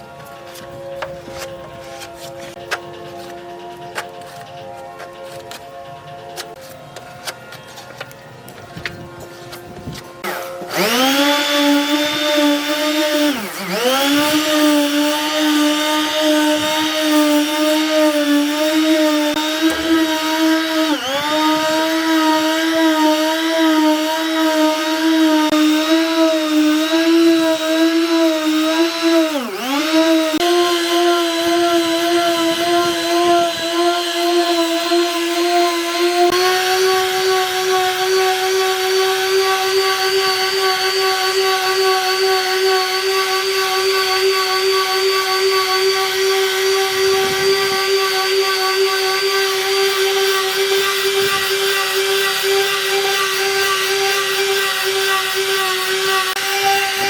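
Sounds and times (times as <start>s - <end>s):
power tool motor whining: 8.7s - 57.0s.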